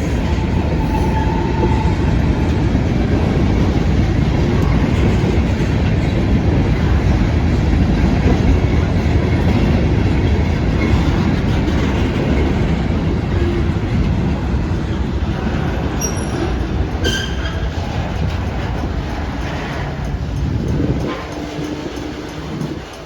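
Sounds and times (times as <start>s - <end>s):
train wheels rumbling and clattering: 0.0s - 23.0s
wheel squeals: 16.0s - 17.8s.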